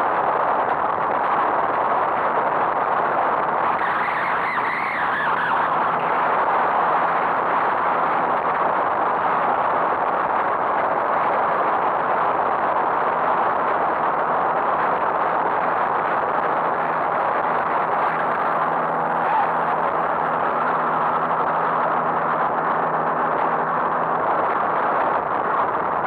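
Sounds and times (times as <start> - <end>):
car road and engine noise: 2.7 - 26.0.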